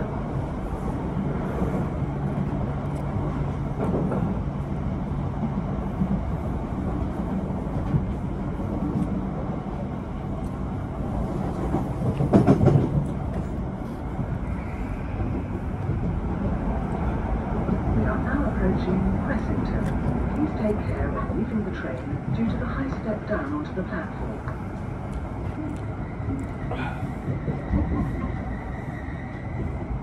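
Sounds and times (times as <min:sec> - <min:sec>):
train rumble inside carriage: 0:00.0 - 0:30.0
train clatter: 0:01.5 - 0:04.7, 0:11.2 - 0:14.4.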